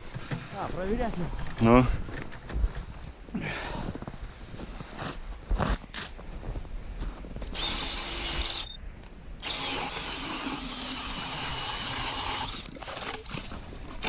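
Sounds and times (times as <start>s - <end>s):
ice auger grinding into ice: 7.5s - 8.7s, 9.4s - 14.0s.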